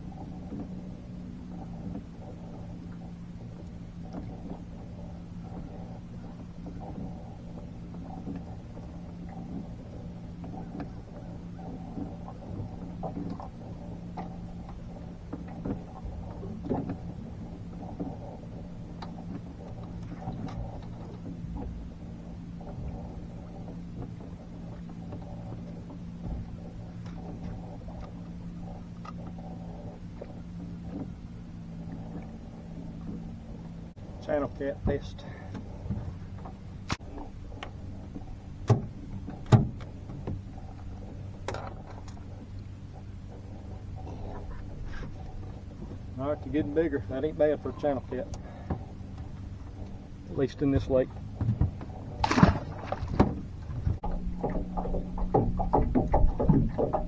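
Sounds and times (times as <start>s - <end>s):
boat motor humming: 0.0s - 57.0s
sharp knocks and thumps: 38.6s - 40.4s, 51.3s - 57.0s.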